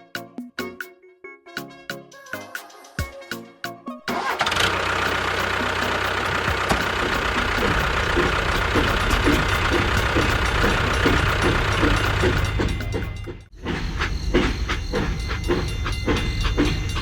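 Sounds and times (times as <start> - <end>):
engine starting and running: 4.1 - 17.0.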